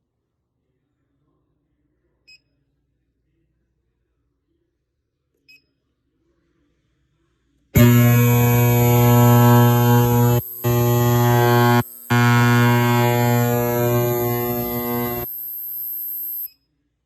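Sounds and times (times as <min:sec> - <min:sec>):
loud steady buzz with hiss: 0:07.8 - 0:16.5.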